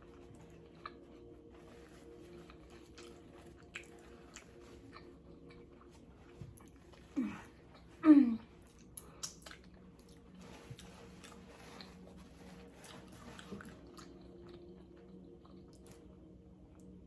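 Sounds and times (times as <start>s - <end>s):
chewing food: 0.0s - 17.0s.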